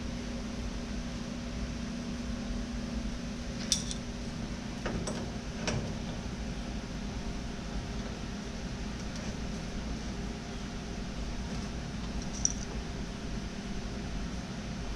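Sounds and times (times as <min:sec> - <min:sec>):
steady background hum: 0:00.0 - 0:14.9
light metallic clinks: 0:03.6 - 0:04.1.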